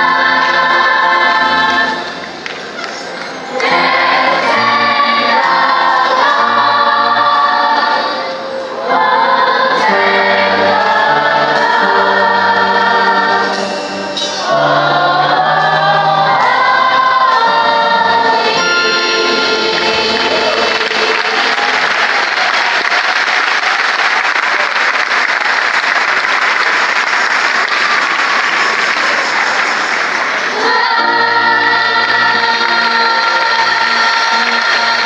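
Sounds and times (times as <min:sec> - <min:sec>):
choir singing gospel: 0:00.0 - 0:24.2, 0:30.0 - 0:35.0.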